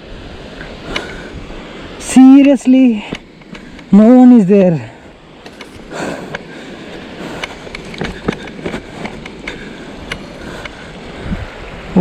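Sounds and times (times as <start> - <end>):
waterfall rushing: 0.0 - 12.0
irregular clicks and knocks: 7.4 - 10.8.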